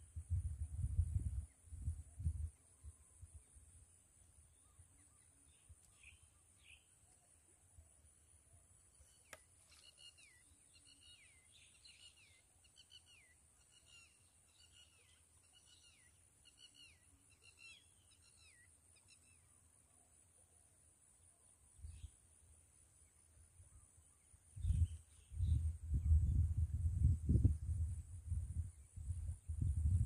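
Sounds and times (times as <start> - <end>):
sharp click: 9.2 - 9.5.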